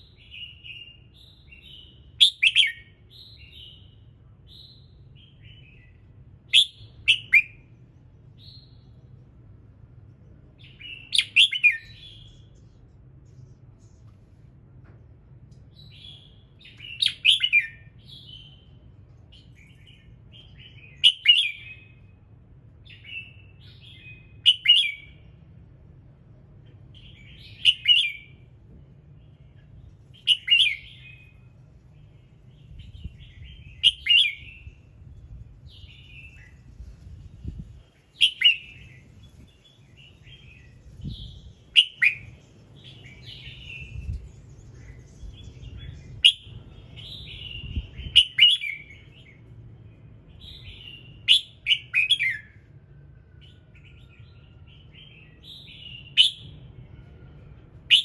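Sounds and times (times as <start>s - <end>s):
bird singing warbled phrases: 0.0s - 9.2s, 10.5s - 12.9s, 15.7s - 25.4s, 26.6s - 52.6s, 53.4s - 56.8s.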